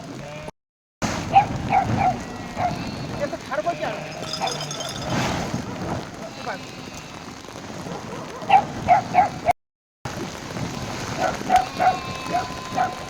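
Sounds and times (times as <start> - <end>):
dog yelping: 1.3 - 2.9, 4.2 - 4.8, 7.8 - 9.5, 11.2 - 13.0.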